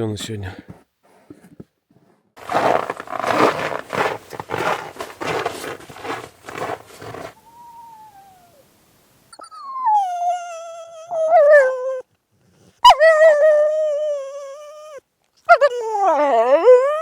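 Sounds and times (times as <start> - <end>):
scuffing noises: 2.4 - 7.4
dog whining: 7.4 - 8.6, 9.4 - 17.0
dog howling: 12.8 - 17.0.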